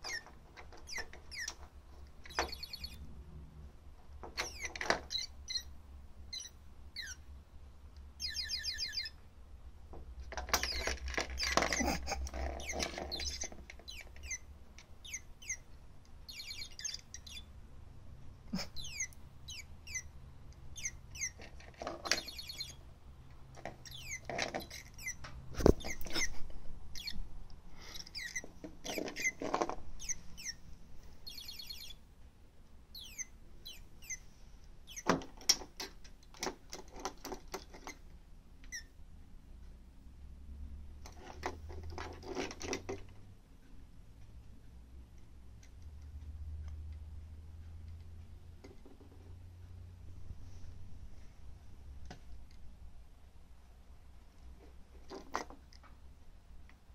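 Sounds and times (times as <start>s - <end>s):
toy bird electronic chirps: 2.3s - 3.0s, 6.3s - 7.2s, 8.2s - 9.2s, 16.3s - 17.5s, 18.8s - 20.1s, 22.2s - 22.8s, 31.2s - 32.0s, 33.0s - 34.2s.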